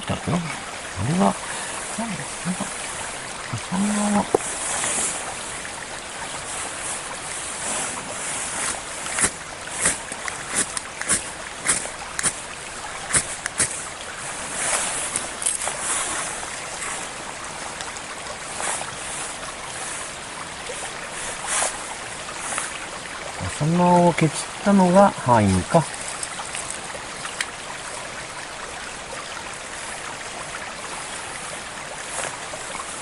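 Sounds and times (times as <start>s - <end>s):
stream rushing: 0.0s - 33.0s
hands clicking and scraping wood: 9.1s - 12.4s.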